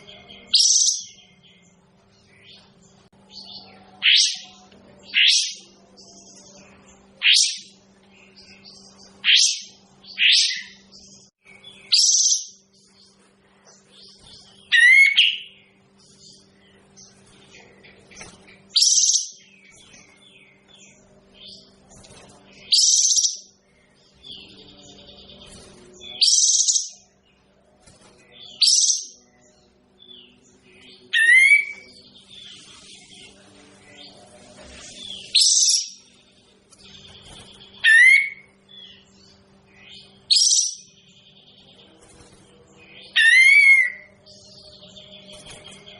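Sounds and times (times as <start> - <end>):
faint steady hum: 0.0 - 45.9
bird calling: 37.7 - 38.5.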